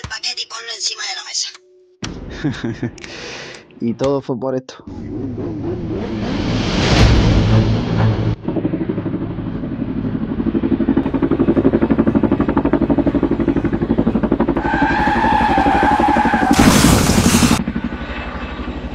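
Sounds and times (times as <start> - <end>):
vehicle engine running: 4.9 - 18.9
loud rushing noise: 5.6 - 8.6, 16.5 - 17.6.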